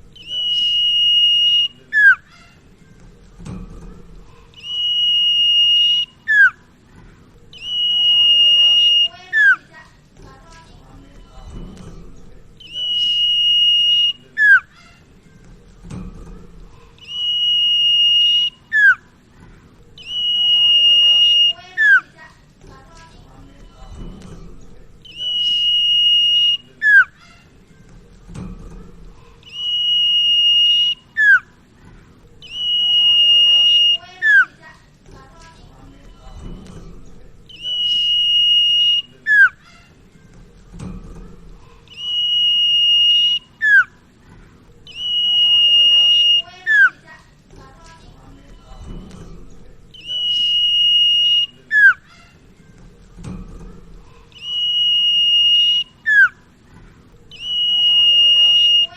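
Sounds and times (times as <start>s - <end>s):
bird high whistle: 0.1s - 2.3s, 4.6s - 6.7s, 7.5s - 9.6s, 12.6s - 14.7s, 17.0s - 19.1s, 20.0s - 22.1s, 25.0s - 27.2s, 29.4s - 31.6s, 32.4s - 34.6s, 37.5s - 39.6s, 41.9s - 44.0s, 44.9s - 47.0s, 49.9s - 52.1s, 54.3s - 56.4s, 57.3s - 58.9s.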